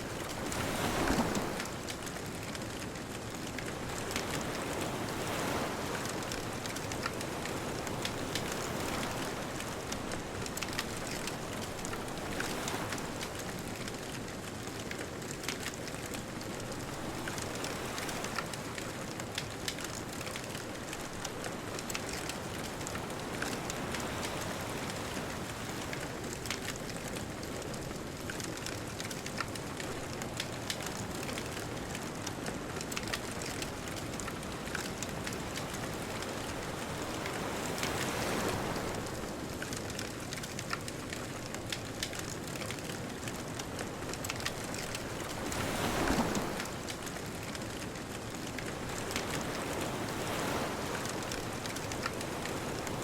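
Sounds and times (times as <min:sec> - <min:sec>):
distant ocean surf: 0:00.0 - 0:02.1, 0:29.3 - 0:53.0
bonfire crackling: 0:00.1 - 0:53.0.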